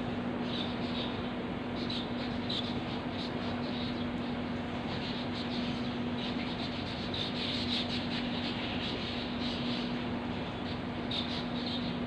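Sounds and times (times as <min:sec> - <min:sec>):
steady low hum: 0:00.0 - 0:12.0
birds chirping and calling: 0:10.6 - 0:12.0.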